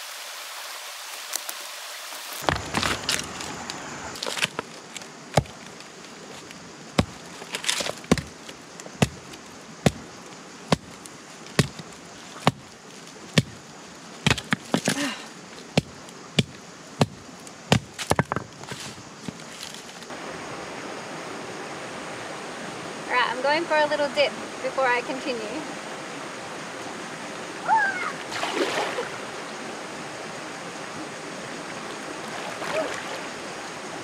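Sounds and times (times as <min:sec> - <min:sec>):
rushing hiss: 0:00.0 - 0:04.3
sharp knocks on wood: 0:08.1 - 0:08.3, 0:09.0 - 0:09.2, 0:15.8 - 0:18.5.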